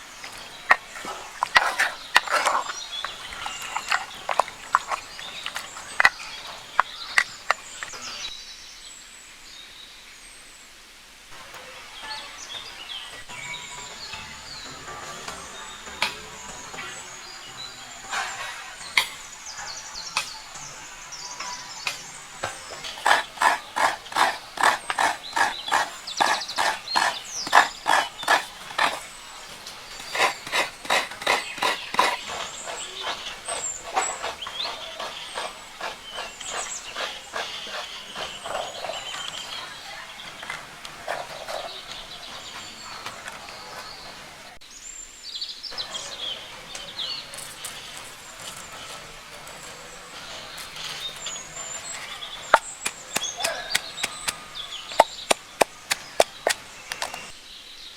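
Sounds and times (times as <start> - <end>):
birds chirping: 0.0 - 57.9
knife chopping food: 22.7 - 39.0, 51.9 - 57.3.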